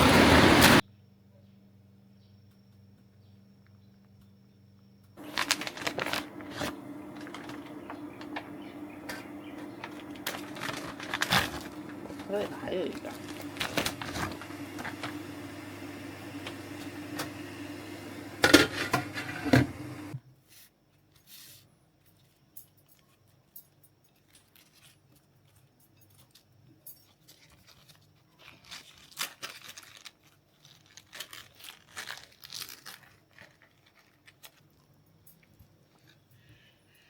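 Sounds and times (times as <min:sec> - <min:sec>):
steady machine hum: 0:00.0 - 0:00.8, 0:05.2 - 0:20.2
plastic wrapping crinkling and tearing: 0:05.2 - 0:15.2, 0:24.1 - 0:35.0.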